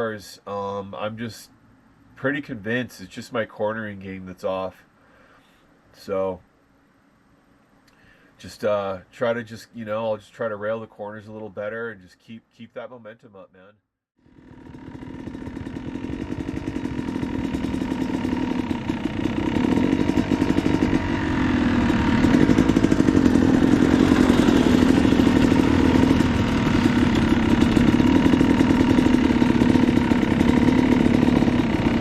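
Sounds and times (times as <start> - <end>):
dirt bike engines running: 14.3 - 32.0.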